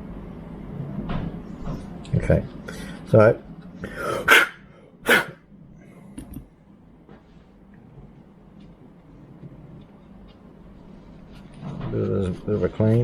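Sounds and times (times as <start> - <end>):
dog barking: 4.1 - 5.4.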